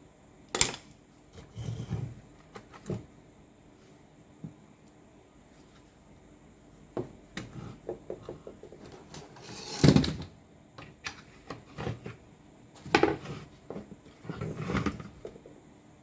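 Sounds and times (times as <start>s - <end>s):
tools clattering and scraping: 8.3s - 10.3s.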